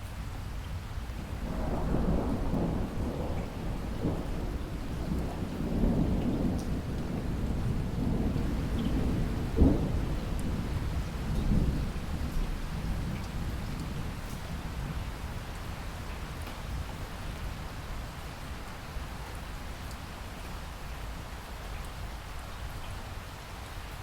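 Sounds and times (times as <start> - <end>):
heavy rain: 0.0 - 24.0
thunder rumbling: 1.4 - 15.0.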